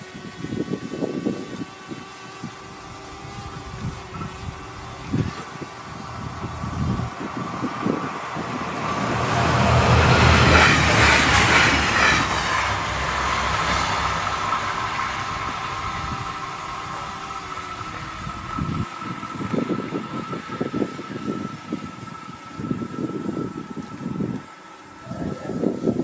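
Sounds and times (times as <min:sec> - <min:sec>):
diesel train passing: 0:01.7 - 0:25.1.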